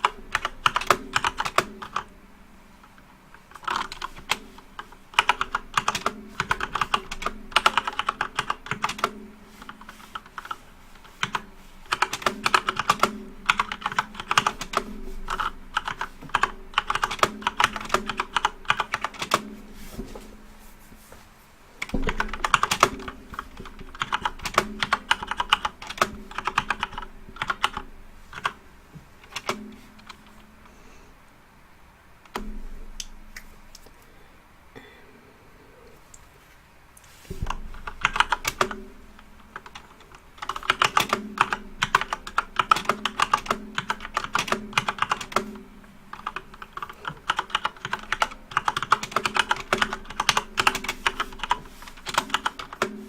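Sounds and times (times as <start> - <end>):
keyboard typing clicks: 0.0 - 2.1, 3.5 - 19.5, 21.8 - 28.6, 29.2 - 30.4, 39.5 - 53.0
faint steady hum: 0.0 - 53.0.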